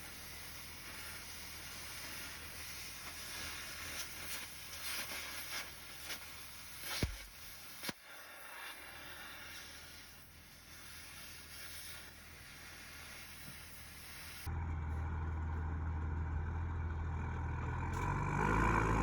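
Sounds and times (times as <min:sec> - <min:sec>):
cutting torch hissing: 0:00.0 - 0:14.5
pops and clicks: 0:04.0 - 0:08.2.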